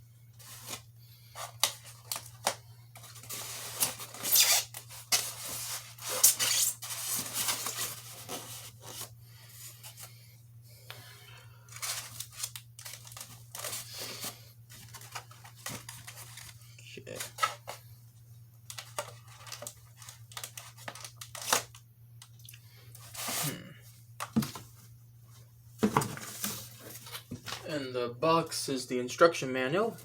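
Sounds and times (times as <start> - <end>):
steady low hum: 0.0 - 30.0
packaging rustling and tearing: 0.4 - 9.1, 11.7 - 17.8, 18.7 - 21.8.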